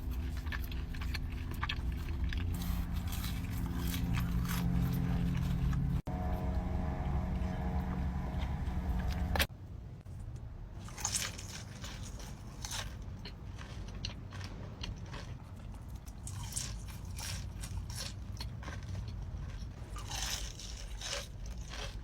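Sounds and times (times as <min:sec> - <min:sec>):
crunchy bites and chewing: 0:00.0 - 0:06.1, 0:10.8 - 0:22.0
low steady hum: 0:00.0 - 0:22.0.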